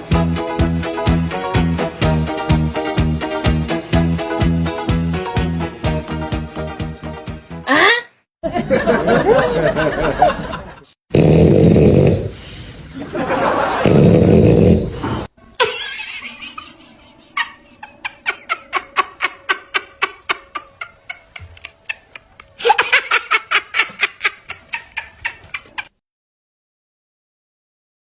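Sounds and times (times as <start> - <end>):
dog snoring loudly: 11.1 - 12.5, 13.8 - 15.3.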